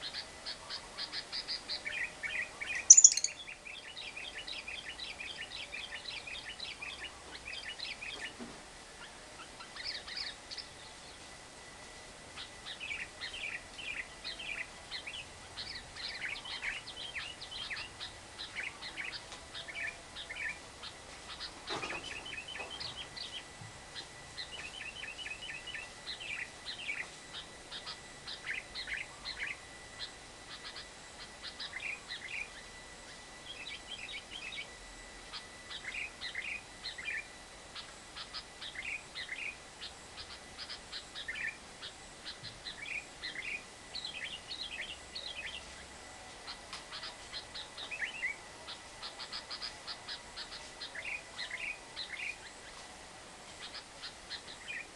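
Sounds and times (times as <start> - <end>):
lovebird chirping: 1.0 - 8.1
faint steady high tone: 1.7 - 7.9, 22.2 - 54.9.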